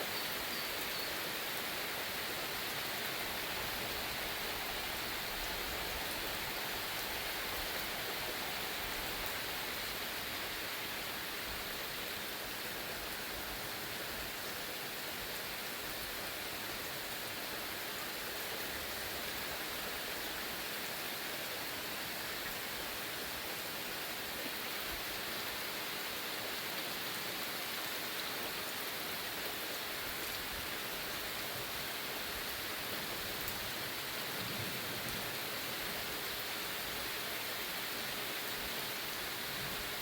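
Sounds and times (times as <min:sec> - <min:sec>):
heavy rain falling: 0:24.9 - 0:40.0.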